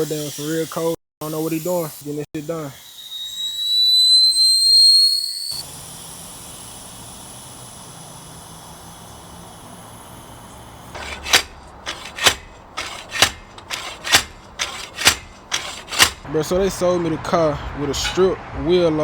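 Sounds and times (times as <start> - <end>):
hammer striking metal: 11.0 - 16.3, 17.9 - 18.2.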